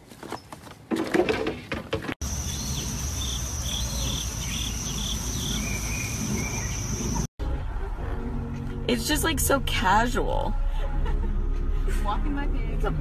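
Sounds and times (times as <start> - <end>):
high insect trill: 2.2 - 7.3.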